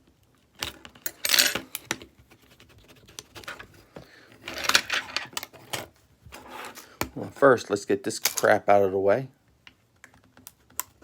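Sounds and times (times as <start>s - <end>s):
small phone parts clattering: 0.6s - 2.3s, 3.4s - 7.5s.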